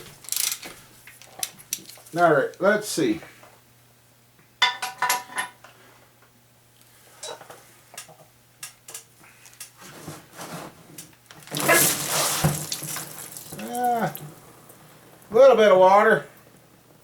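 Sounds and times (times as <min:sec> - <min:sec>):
spilled water rushing: 0:11.4 - 0:15.3.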